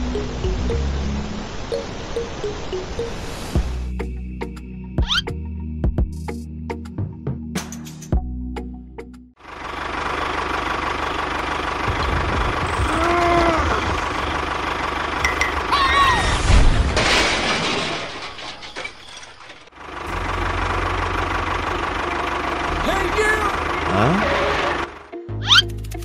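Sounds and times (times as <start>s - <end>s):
engine knocking pulse: 9.7s - 13.1s.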